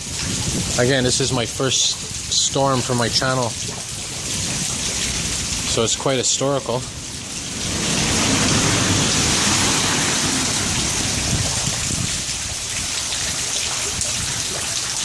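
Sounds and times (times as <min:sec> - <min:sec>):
heavy rain splashing: 0:00.0 - 0:15.0
low rumble: 0:06.9 - 0:12.4.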